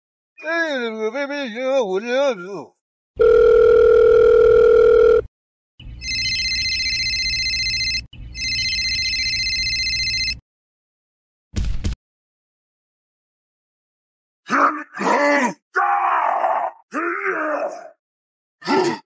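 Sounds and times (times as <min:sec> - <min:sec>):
phone ringing: 0:03.2 - 0:05.3, 0:06.0 - 0:10.4
steady phone tone: 0:03.2 - 0:05.3, 0:06.0 - 0:10.4.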